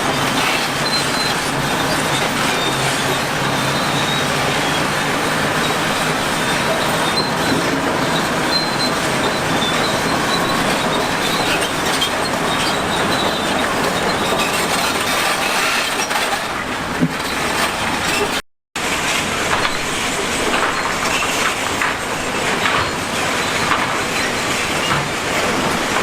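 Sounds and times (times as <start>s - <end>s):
heavy machinery grinding and clanking: 0.0s - 26.0s
faint high metallic squeals: 0.2s - 16.6s.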